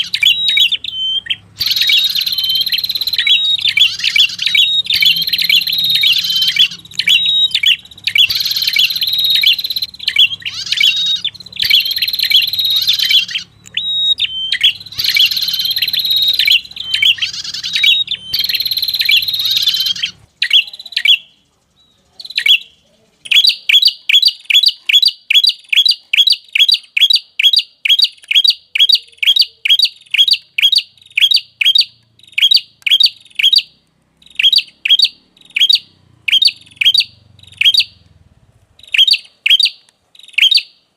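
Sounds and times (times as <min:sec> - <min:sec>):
bird chip notes: 0:00.0 - 0:21.3
bird chattering: 0:00.0 - 0:40.9.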